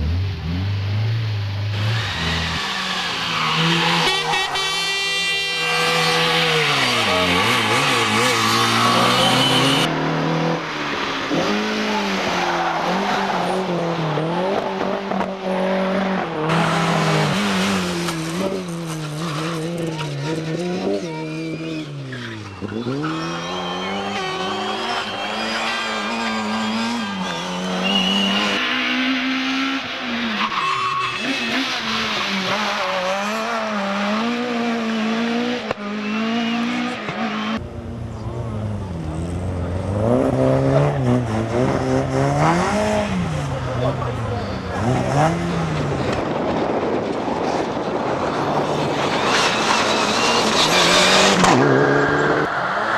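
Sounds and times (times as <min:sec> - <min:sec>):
rally car engines revving: 0:00.0 - 0:52.9
tyre squeal: 0:01.8 - 0:09.9, 0:19.1 - 0:33.0, 0:49.1 - 0:52.8.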